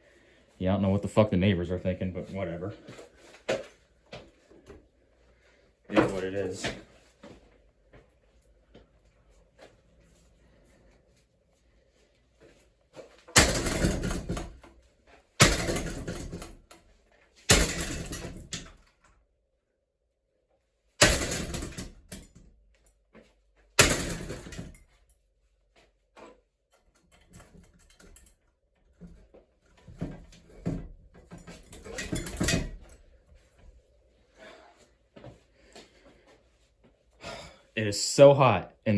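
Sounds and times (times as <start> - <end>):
clattering of loose parts: 13.3 - 14.7, 15.4 - 16.7, 17.5 - 18.9, 21.0 - 22.4, 23.8 - 25.0, 29.8 - 33.0.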